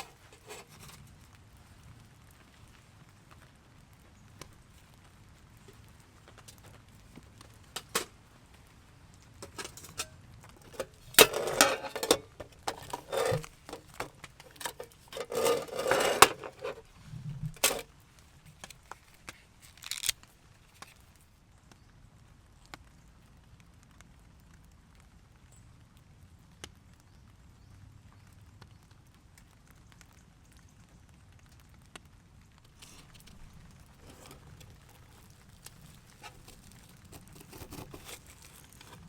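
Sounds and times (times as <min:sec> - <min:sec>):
rustling and clattering: 0:00.0 - 0:01.1, 0:05.6 - 0:08.2, 0:09.4 - 0:21.0, 0:32.7 - 0:39.0
clicks and small knocks: 0:05.7 - 0:08.2, 0:09.4 - 0:21.0, 0:32.7 - 0:39.0.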